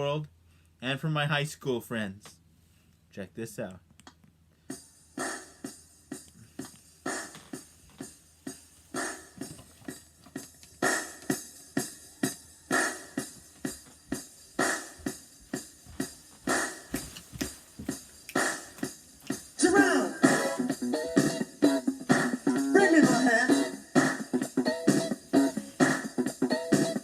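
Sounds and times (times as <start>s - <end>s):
drum kit beat with hi-hat and cymbal: 4.7s - 9.6s, 10.4s - 27.0s.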